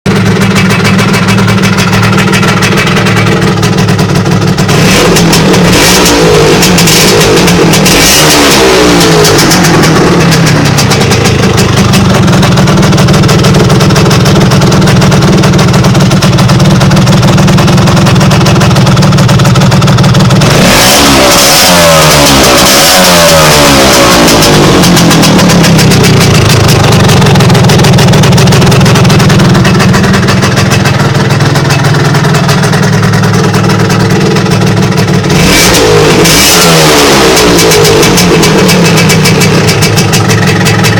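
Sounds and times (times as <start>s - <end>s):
scooter engine idling and revving: 0.0s - 40.9s.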